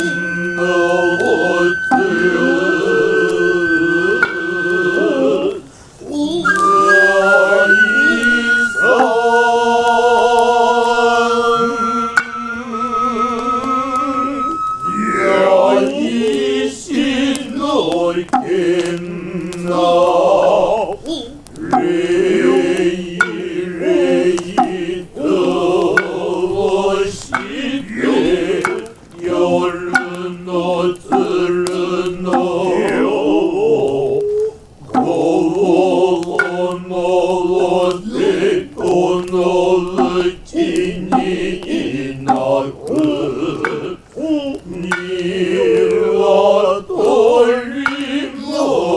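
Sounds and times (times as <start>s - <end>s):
high flute note: 0.0s - 16.3s
man chanting low held notes: 0.0s - 17.7s, 18.3s - 48.7s
sharp knocks: 21.6s - 22.0s, 24.5s - 24.9s, 39.9s - 40.3s, 41.1s - 41.4s.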